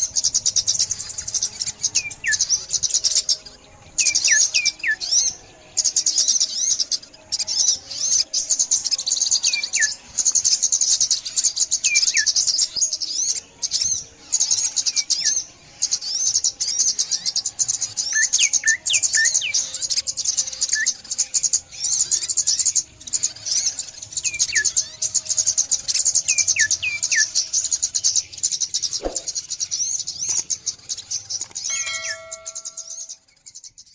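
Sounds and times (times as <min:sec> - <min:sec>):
songbirds twittering in rapid trills: 0:00.0 - 0:33.9
sharp click: 0:29.0 - 0:29.4.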